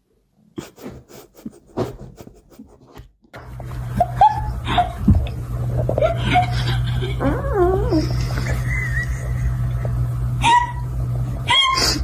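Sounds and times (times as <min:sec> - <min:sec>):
steady low hum: 0:03.4 - 0:12.0
short pitched cries: 0:10.4 - 0:12.0.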